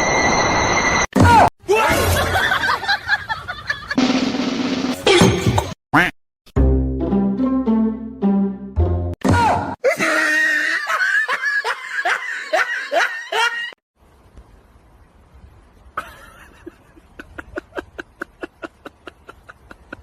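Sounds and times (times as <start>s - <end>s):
person laughing loudly: 9.8s - 13.8s, 16.0s - 20.0s.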